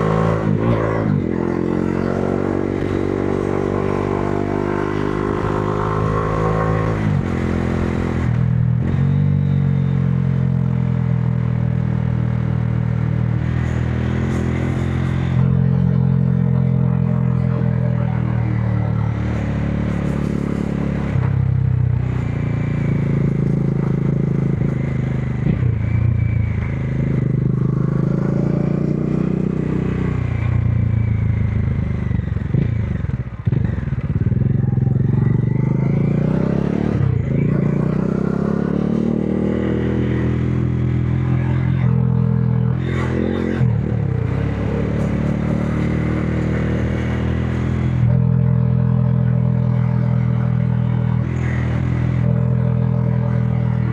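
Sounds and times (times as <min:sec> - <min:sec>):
motorcycle engine shifting gears: 0:00.0 - 0:53.9.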